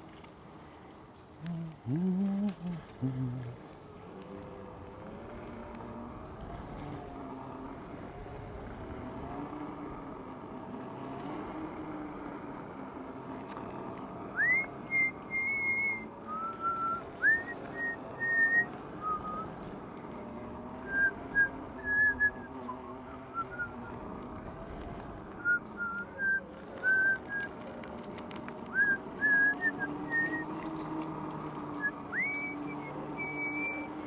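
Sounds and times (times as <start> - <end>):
low wavering hum: 0.0 - 10.3
person whistling a tune: 14.4 - 19.4, 20.8 - 23.9, 25.4 - 27.4, 28.7 - 30.5, 31.8 - 33.9.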